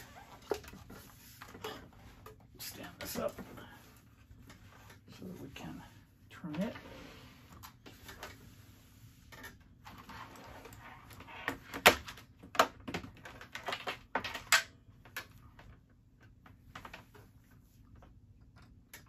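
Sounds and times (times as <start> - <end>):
plastic keyboard clicks and knocks: 11.6 - 17.1.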